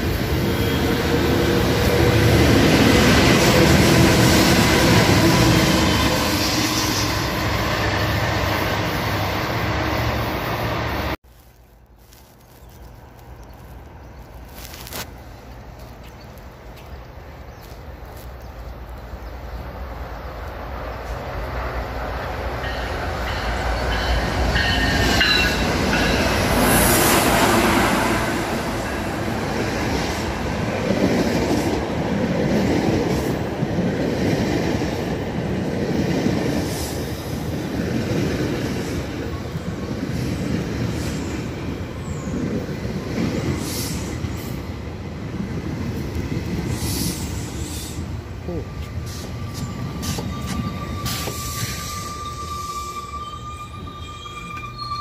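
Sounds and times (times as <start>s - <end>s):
train wheels rumbling and clattering: 19.5s - 55.0s
high squealing tones: 49.3s - 55.0s.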